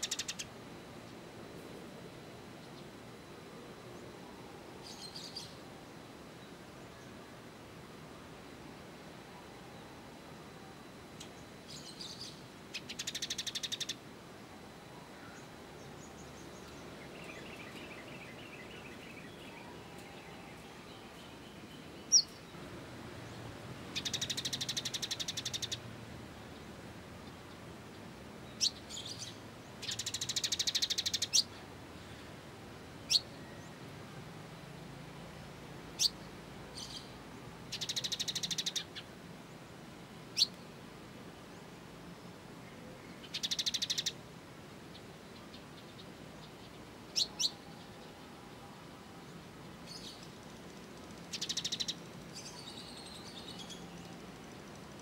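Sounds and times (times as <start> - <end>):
sunbird trilling: 0.0 - 0.5, 11.4 - 14.0, 15.2 - 22.5, 23.9 - 25.8, 28.5 - 31.6, 33.1 - 33.7, 36.0 - 39.1, 40.4 - 40.6, 43.2 - 44.2, 47.1 - 47.7, 51.3 - 54.1.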